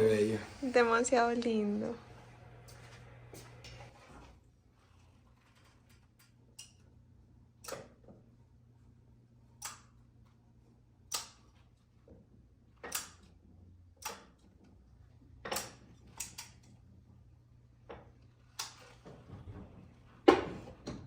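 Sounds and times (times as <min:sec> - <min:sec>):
washing machine low hum: 0:00.0 - 0:05.0.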